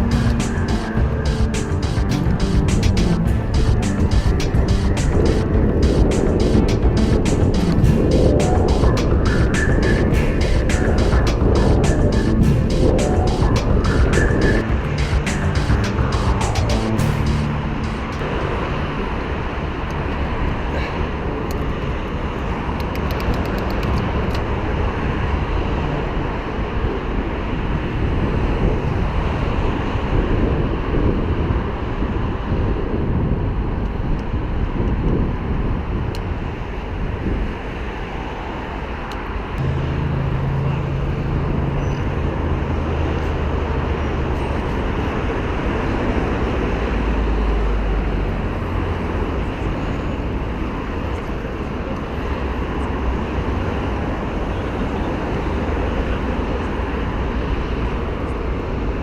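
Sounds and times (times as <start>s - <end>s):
steady low hum: 0.0s - 22.8s, 39.6s - 44.2s
road traffic: 0.0s - 59.0s
wind rumble on microphone: 0.0s - 59.0s.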